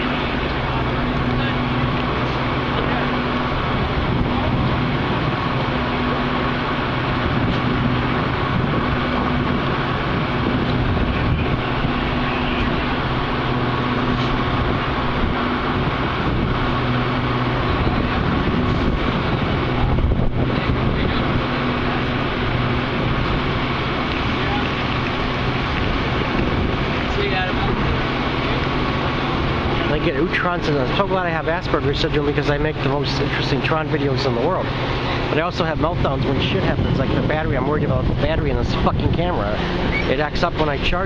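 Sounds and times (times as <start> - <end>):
diesel locomotive engine humming: 0.0 - 41.0
wind buffeting microphone: 0.0 - 41.0.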